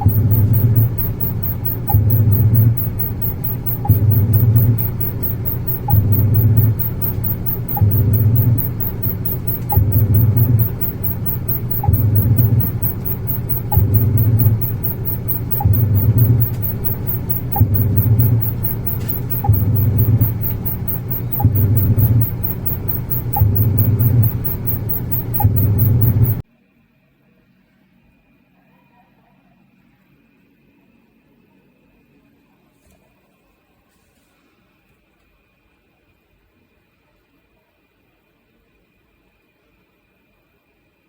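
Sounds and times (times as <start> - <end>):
washing machine motor humming: 0.0 - 26.4.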